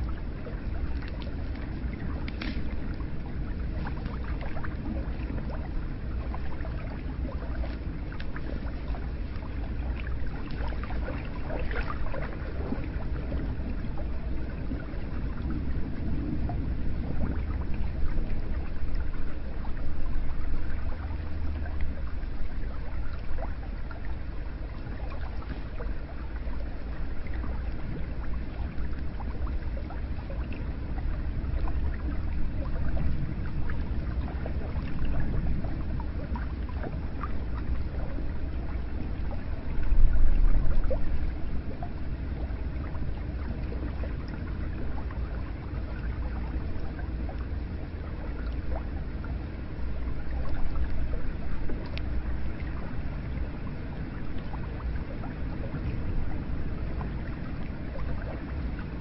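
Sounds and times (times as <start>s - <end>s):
water running and splashing: 0.0s - 15.6s.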